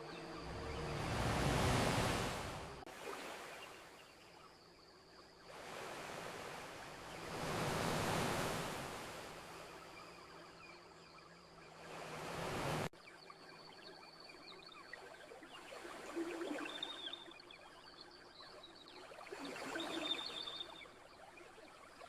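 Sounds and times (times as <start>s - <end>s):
ocean waves washing onto beach: 0.0s - 4.2s, 5.5s - 10.0s, 11.7s - 12.9s.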